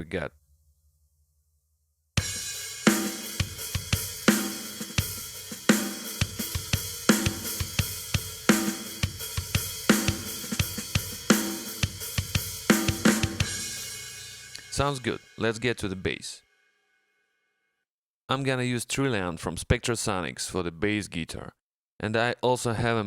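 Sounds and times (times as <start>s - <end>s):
rock drum beat: 2.2s - 15.6s.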